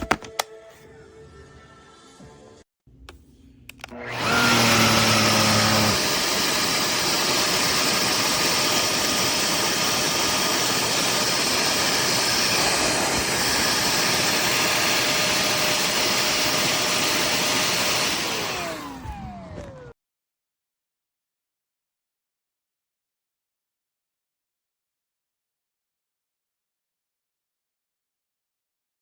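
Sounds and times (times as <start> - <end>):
handheld vacuum running: 3.8 - 20.0
vacuum motor winding down: 3.8 - 20.0.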